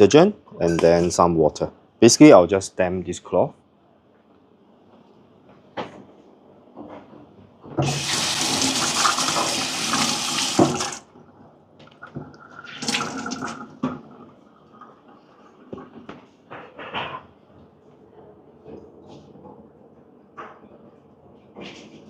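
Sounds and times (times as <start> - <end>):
water tap running into sink: 7.8 - 11.1, 11.9 - 15.2.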